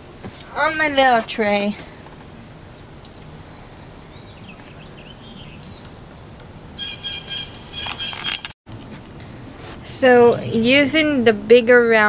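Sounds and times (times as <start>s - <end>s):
birds chirping: 2.6s - 8.4s, 9.9s - 11.3s.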